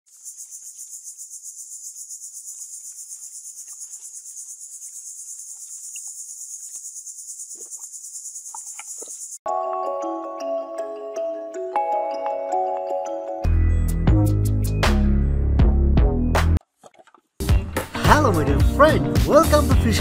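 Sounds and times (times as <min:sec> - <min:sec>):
insect trill: 0:00.1 - 0:09.4.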